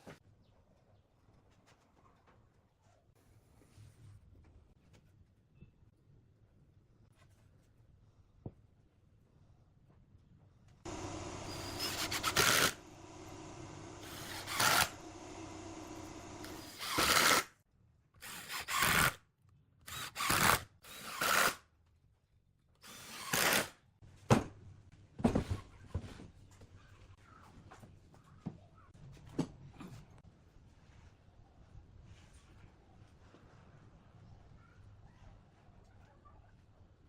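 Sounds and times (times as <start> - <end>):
power drill running: 10.9 - 17.4.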